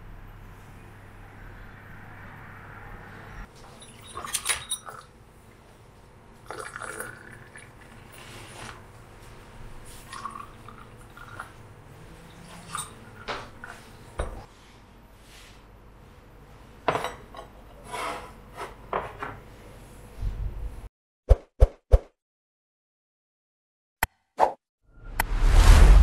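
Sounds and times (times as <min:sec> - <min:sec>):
dishes and cutlery clinking: 0:03.6 - 0:05.1, 0:12.3 - 0:14.5, 0:16.9 - 0:19.4.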